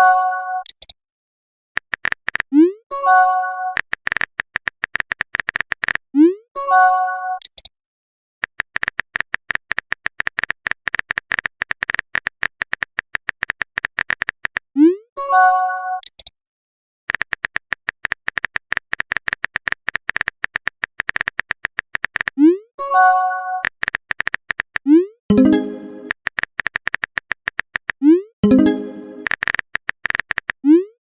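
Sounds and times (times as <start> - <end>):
phone keyboard typing clicks: 1.8 - 2.5, 3.7 - 6.0, 8.4 - 14.7, 17.1 - 22.4, 23.6 - 30.6
message chime: 25.3 - 26.1, 28.4 - 29.3.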